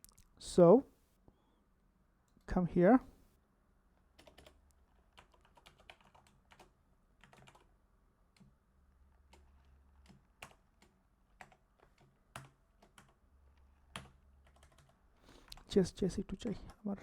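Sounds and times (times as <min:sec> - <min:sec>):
low electrical hum: 0:00.0 - 0:17.0
keyboard typing: 0:04.2 - 0:07.7, 0:09.2 - 0:16.8.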